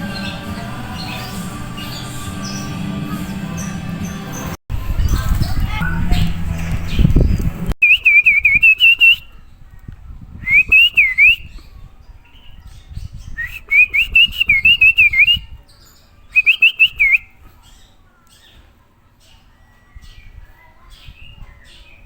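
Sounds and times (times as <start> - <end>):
loud low noise: 0.0 - 7.8
bird singing whistled phrases: 7.8 - 9.4, 10.4 - 11.7, 13.0 - 17.4.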